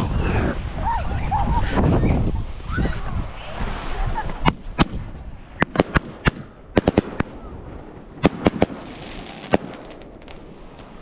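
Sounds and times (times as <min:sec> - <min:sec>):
fireworks fizzing crackle: 0:03.4 - 0:11.0
fireworks bangs: 0:04.4 - 0:11.0.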